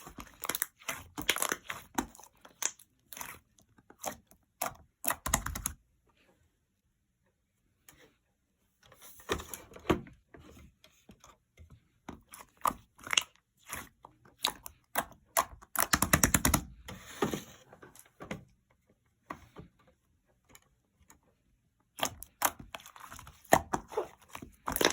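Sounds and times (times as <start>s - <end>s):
slime squished by hand: 22.0s - 24.9s.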